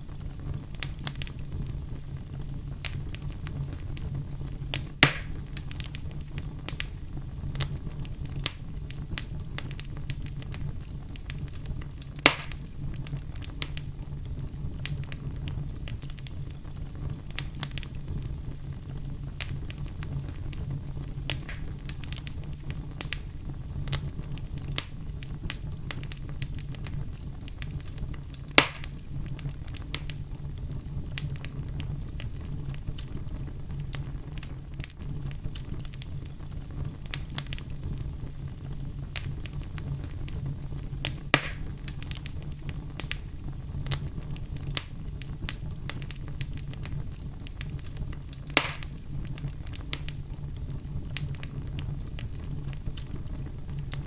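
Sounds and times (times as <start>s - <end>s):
low rumble of fire: 0.0s - 54.0s
small fire crackles: 0.0s - 54.0s
sharp wood pops: 5.0s - 5.3s, 12.3s - 12.6s, 28.6s - 28.9s, 41.3s - 41.6s, 48.6s - 48.9s.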